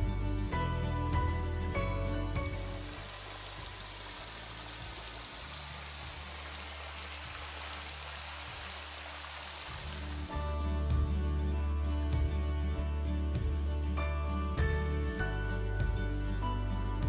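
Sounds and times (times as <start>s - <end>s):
rushing water: 2.3s - 10.4s.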